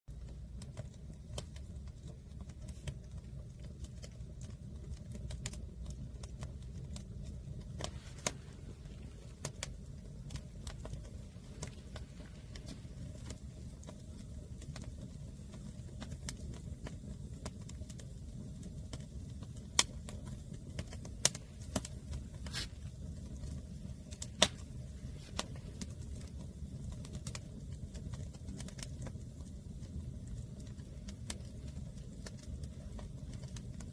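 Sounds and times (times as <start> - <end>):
low steady rumble: 0.1 - 33.9
wood fire crackling: 0.1 - 33.9.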